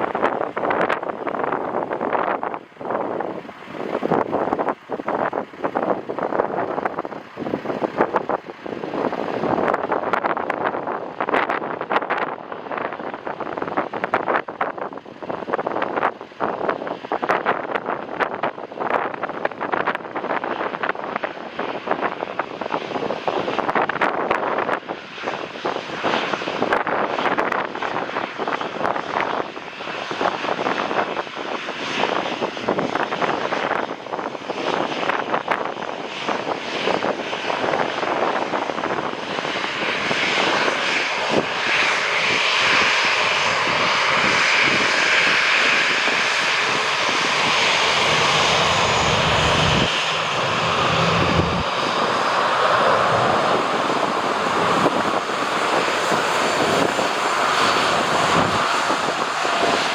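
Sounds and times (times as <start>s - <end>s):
jet engine roar: 0.0s - 59.9s
wind buffeting microphone: 0.0s - 59.9s.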